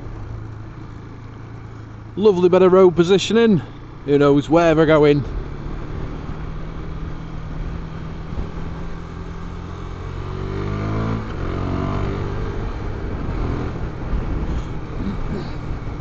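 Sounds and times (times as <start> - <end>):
motorcycle engine accelerating: 3.7 - 16.0.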